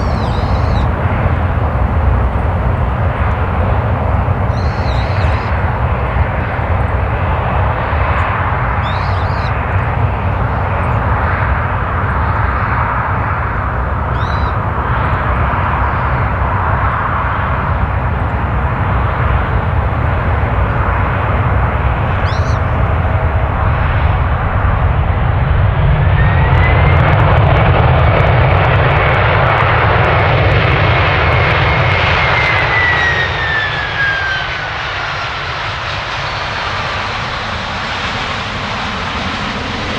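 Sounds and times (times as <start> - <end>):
jet engine whine: 0.0 - 39.9
jet engines roaring: 0.0 - 39.9.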